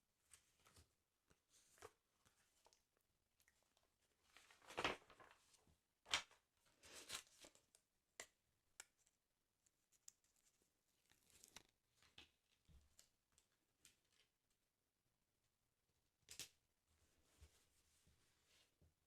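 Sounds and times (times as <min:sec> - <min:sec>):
paper pages rustling: 0:04.3 - 0:07.7.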